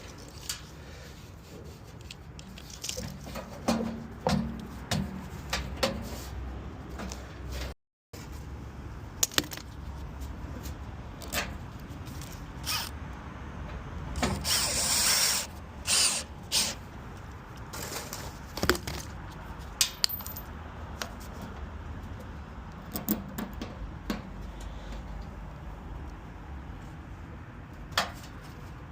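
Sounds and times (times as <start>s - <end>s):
tools clicking and knocking on metal: 19.8s - 21.1s.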